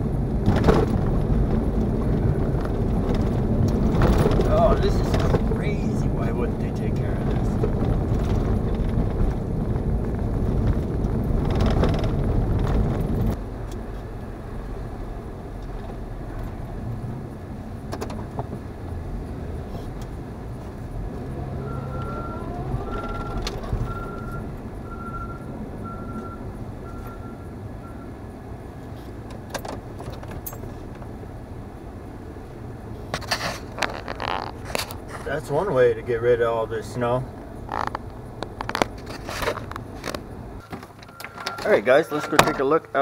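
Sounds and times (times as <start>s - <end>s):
car road and engine noise: 0.0s - 43.0s
vehicle backup alarm beeping: 21.3s - 28.2s, 41.0s - 43.0s.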